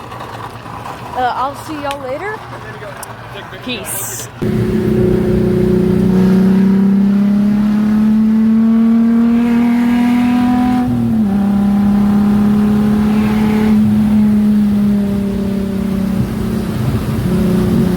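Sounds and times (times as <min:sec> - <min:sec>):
car engine running: 0:04.4 - 0:17.9.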